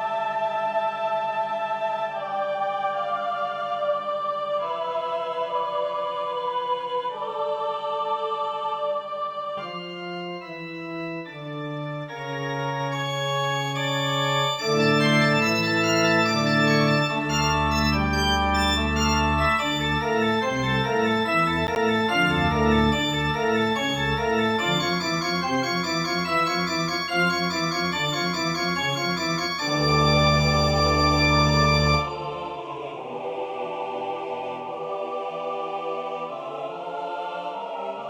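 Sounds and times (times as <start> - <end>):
organ playing slow chords: 9.6 - 32.2.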